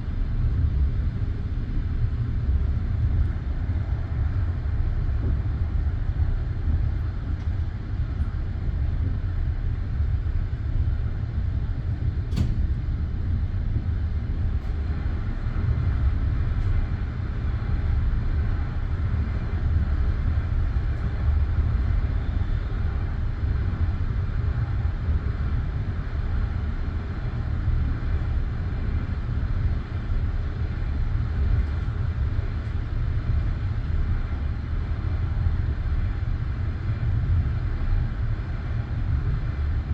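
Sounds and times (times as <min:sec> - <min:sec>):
railway carriage rumble: 0:00.0 - 0:39.9
sharp click: 0:12.3 - 0:12.6.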